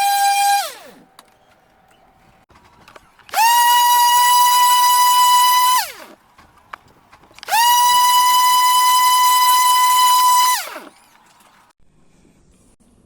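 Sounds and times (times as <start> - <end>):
buzzy whistle blasts: 7.5 - 10.8.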